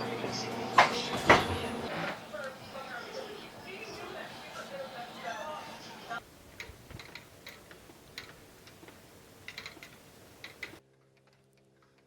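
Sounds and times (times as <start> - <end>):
quiet steady hum: 1.7 - 12.0
light clicks and ticks: 6.6 - 12.0.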